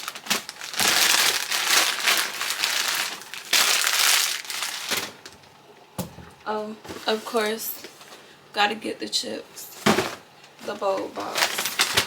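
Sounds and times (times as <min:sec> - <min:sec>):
plastic bags crinkling: 0:00.0 - 0:05.5, 0:06.3 - 0:08.2, 0:09.6 - 0:12.0.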